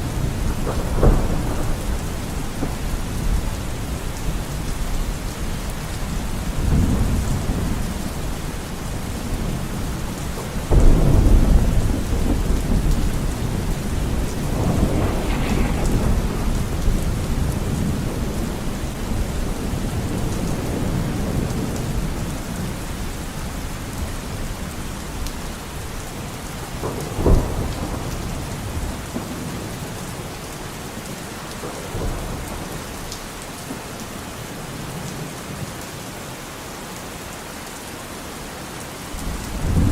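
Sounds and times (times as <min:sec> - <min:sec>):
thunder rumbling: 0:00.0 - 0:25.9, 0:26.5 - 0:30.4, 0:39.2 - 0:39.9
heavy rain on foliage: 0:00.0 - 0:39.9.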